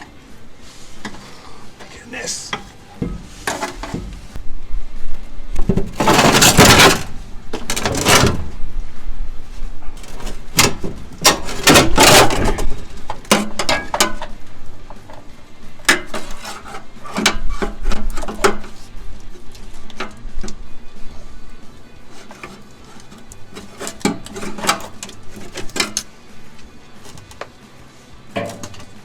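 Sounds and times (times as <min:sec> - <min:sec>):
metal tank scraping: 0:00.6 - 0:04.4, 0:05.6 - 0:08.6, 0:09.6 - 0:14.4, 0:15.1 - 0:20.4, 0:22.0 - 0:26.2, 0:28.3 - 0:29.0.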